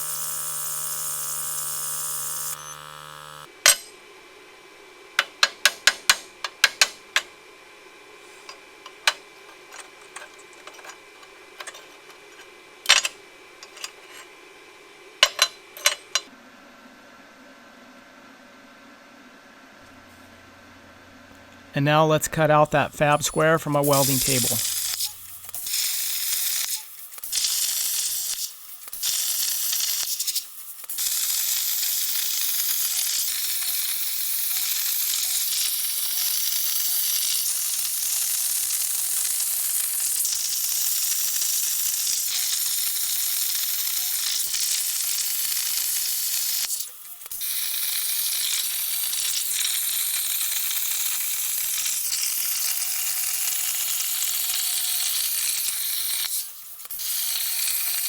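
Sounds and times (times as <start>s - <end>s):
plasma torch hissing arc: 24.1s - 30.4s, 54.2s - 58.0s.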